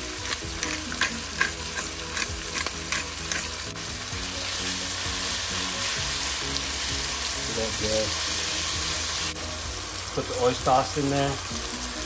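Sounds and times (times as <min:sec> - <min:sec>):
beef and onions sizzling in pan: 0:00.0 - 0:12.0.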